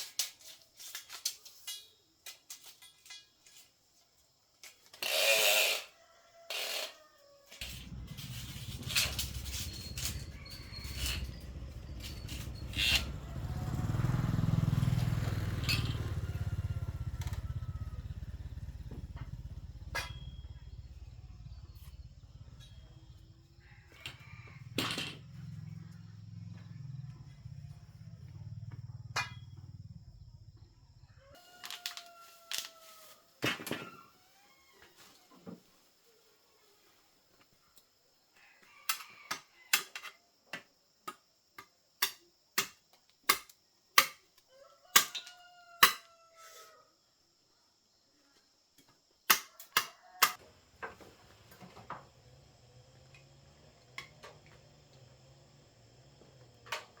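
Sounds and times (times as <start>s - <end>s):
small engine running: 7.6s - 30.7s, 50.4s - 57.0s.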